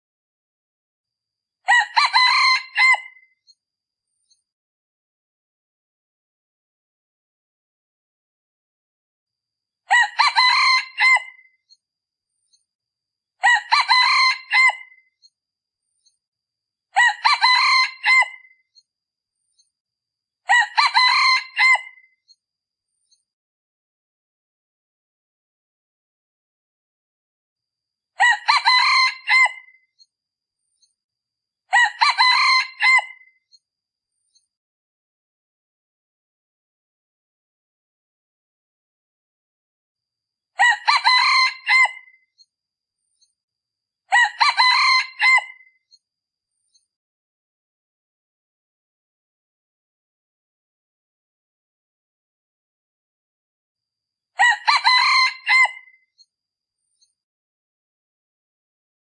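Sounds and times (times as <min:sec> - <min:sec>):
junglefowl crowing: 0:01.7 - 0:03.2, 0:09.9 - 0:11.5, 0:13.4 - 0:15.0, 0:17.0 - 0:18.5, 0:20.5 - 0:22.1, 0:28.2 - 0:29.8, 0:31.7 - 0:33.3, 0:40.6 - 0:42.2, 0:44.1 - 0:45.7, 0:54.4 - 0:56.0
rooster crowing: 0:54.4 - 0:56.0.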